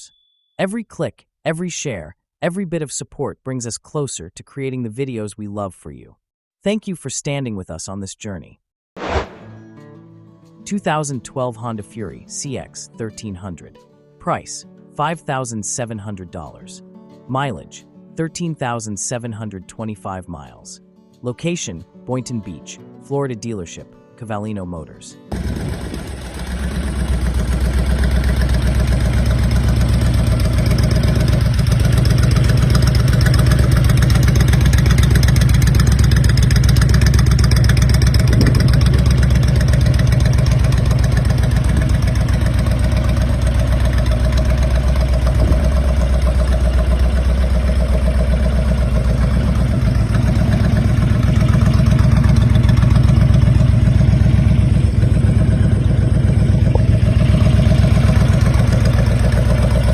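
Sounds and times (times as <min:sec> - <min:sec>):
motorcycle engine idling: 0:25.3 - 0:59.9.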